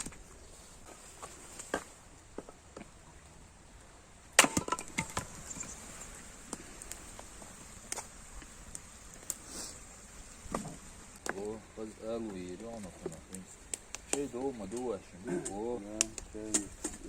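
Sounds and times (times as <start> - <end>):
wood cracking and knocking: 4.4 - 5.7.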